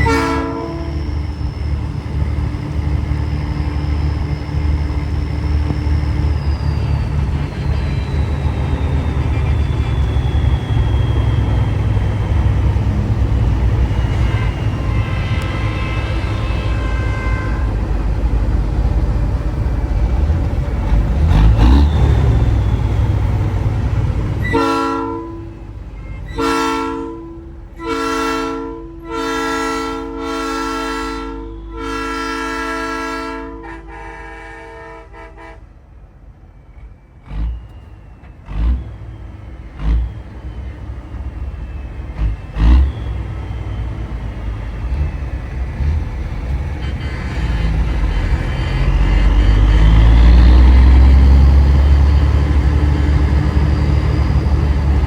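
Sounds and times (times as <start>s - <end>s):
three-chime train horn blasts: 0.0s - 3.1s, 13.4s - 18.2s, 24.4s - 35.7s, 46.5s - 55.0s
road noise: 0.0s - 55.0s
truck engine: 0.0s - 55.0s.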